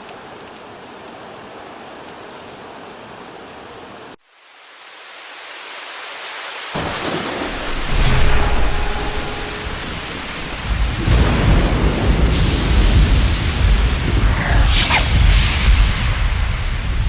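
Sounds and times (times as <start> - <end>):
rain hissing: 0.0 - 17.0
rolling thunder rumble: 6.8 - 17.0.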